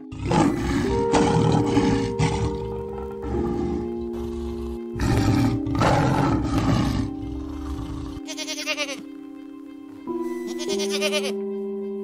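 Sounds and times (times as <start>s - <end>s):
tiger roaring: 0.0s - 8.3s
background music: 0.0s - 12.0s
goat bleating: 8.3s - 9.0s, 10.5s - 11.4s.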